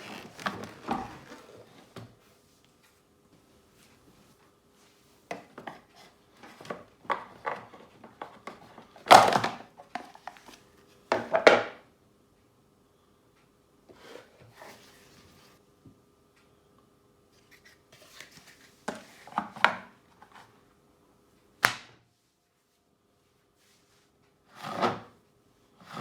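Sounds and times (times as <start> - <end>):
plastic clattering scrapes: 0.0 - 2.0.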